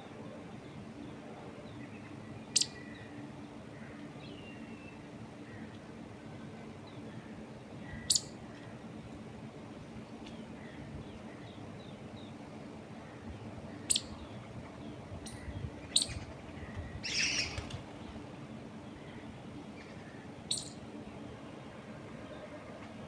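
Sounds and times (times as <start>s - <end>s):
wind in trees: 0.0s - 23.0s
birds chirping: 10.1s - 22.6s.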